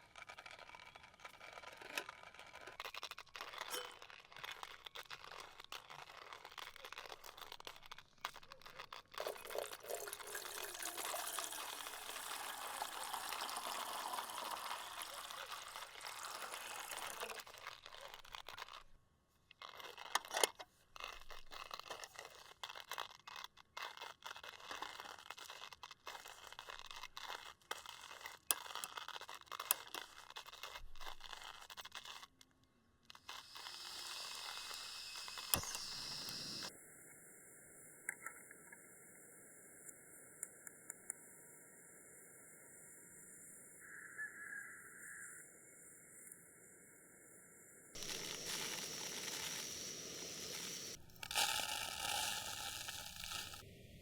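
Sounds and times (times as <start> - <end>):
cooking gear clicks and knocks: 0.1 - 10.5, 19.5 - 32.4
liquid pouring into container: 9.1 - 18.7, 33.3 - 36.7, 48.0 - 53.6.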